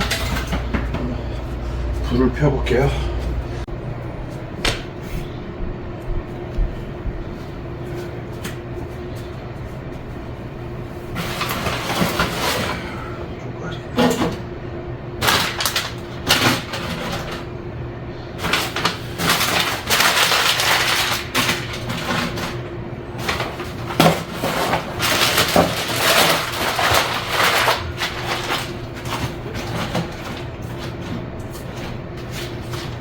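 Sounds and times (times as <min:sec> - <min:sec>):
faint steady hum: 0:00.0 - 0:33.0
paper crinkling: 0:18.4 - 0:33.0.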